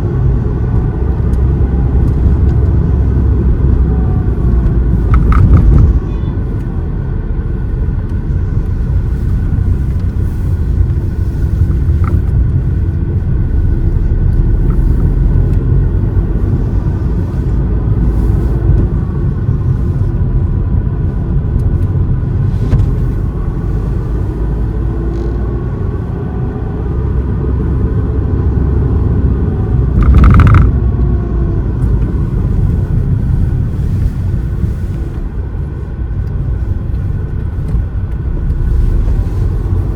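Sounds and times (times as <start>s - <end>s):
engine and tyre rumble: 0.0s - 39.9s.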